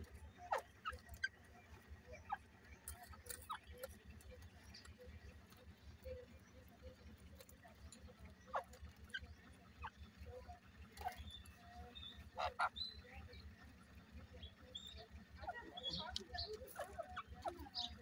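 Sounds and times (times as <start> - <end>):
faint bird chirps: 0.0 - 18.0.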